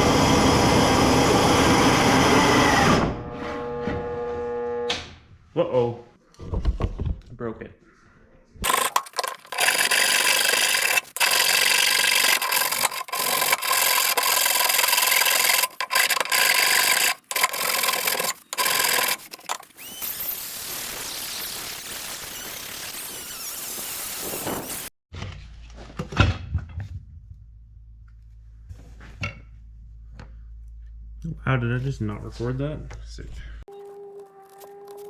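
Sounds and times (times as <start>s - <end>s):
abrasive tool rasping on wood: 8.6s - 20.2s.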